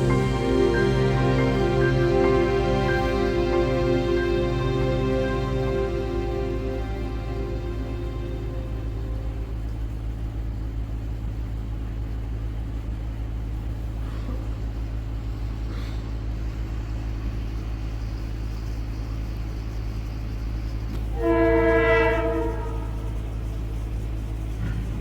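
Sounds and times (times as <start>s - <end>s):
train engine rumbling: 0.0s - 25.0s.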